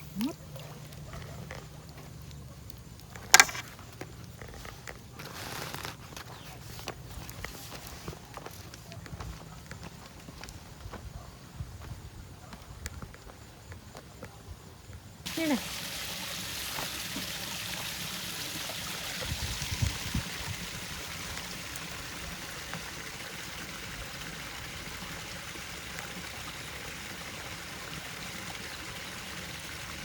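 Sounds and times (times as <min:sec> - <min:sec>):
water running and trickling: 0:15.3 - 0:30.0.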